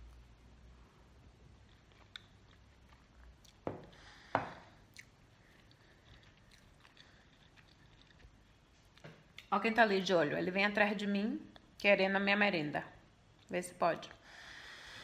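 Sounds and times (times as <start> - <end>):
faint chewing: 1.3 - 9.5.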